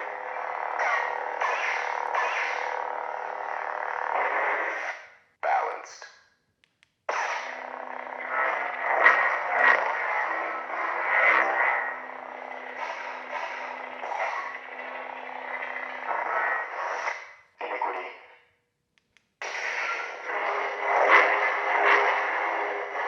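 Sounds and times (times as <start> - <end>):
lightsaber blade hum: 0.0 - 5.1, 7.1 - 17.3, 19.4 - 23.0
lightsaber swing sounds: 0.6 - 3.5, 8.2 - 17.2
lightsaber igniting: 0.6 - 3.6.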